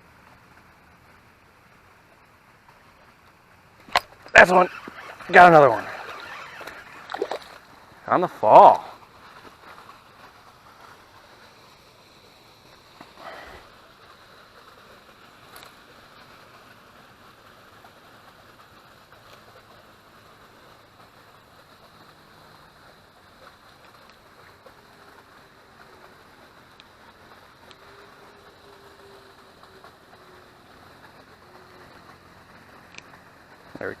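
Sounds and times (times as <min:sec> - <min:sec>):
faint outdoor hiss: 0:00.0 - 0:34.0.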